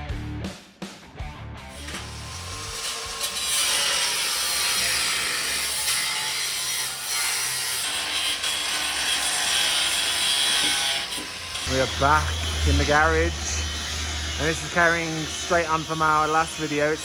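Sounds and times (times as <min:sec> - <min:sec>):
abrasive tool rasping on metal: 0:01.8 - 0:17.0.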